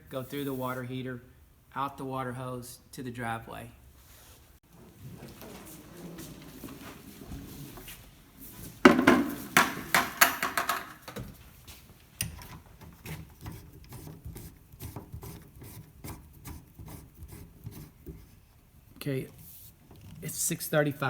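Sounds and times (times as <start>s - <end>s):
knocking and rubbing of fittings: 8.8s - 11.3s.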